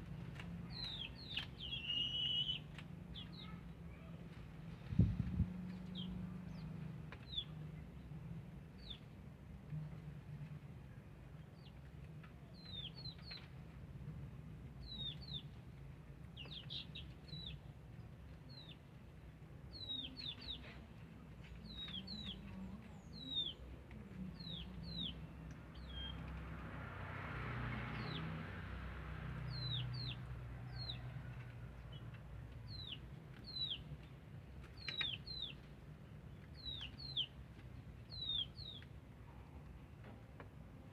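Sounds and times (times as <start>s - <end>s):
small birds chirping: 0.4s - 7.6s, 11.5s - 13.6s, 14.8s - 15.6s, 16.3s - 19.0s, 19.7s - 26.4s, 29.5s - 31.1s, 32.6s - 39.0s.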